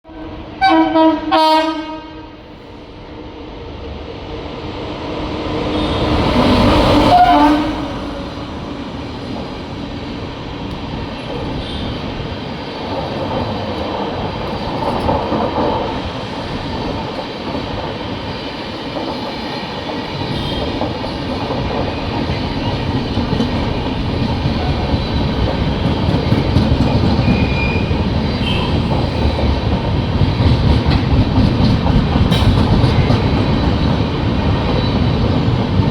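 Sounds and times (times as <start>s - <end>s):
train rumbling on track: 0.0s - 35.9s.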